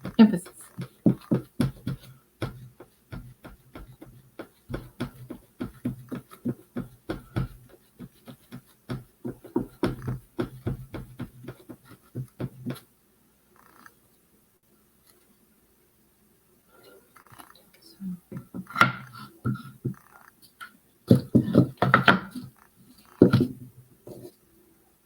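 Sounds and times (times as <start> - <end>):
paintbrush tapping on wood: 0.0 - 12.8.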